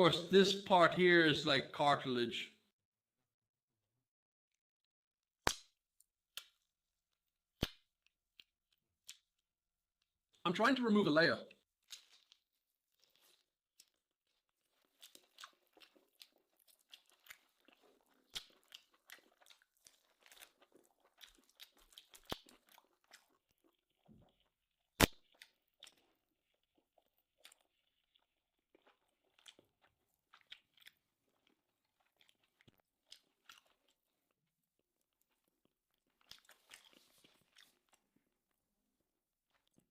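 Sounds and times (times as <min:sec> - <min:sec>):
chewing and crunching steak: 0:11.6 - 0:38.2.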